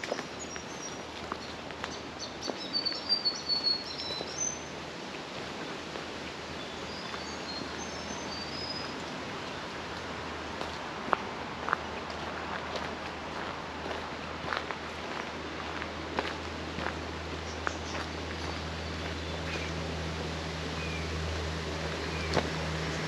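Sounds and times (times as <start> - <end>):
small birds chirping: 0.0 - 4.7, 6.6 - 9.6, 16.8 - 19.8.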